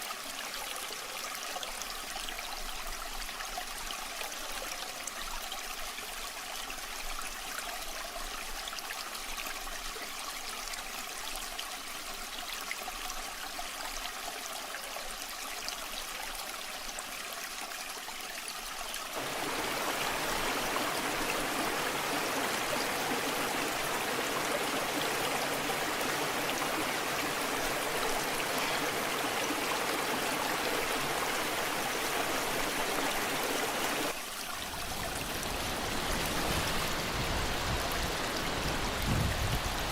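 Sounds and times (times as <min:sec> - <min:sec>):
waterfall rushing: 0:19.2 - 0:39.9.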